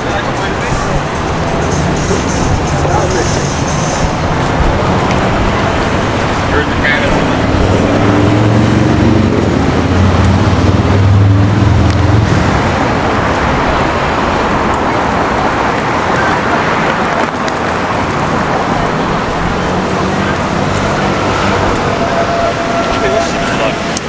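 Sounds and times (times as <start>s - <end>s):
steady road noise: 0.0s - 24.0s
vehicle engine running low: 0.0s - 24.0s.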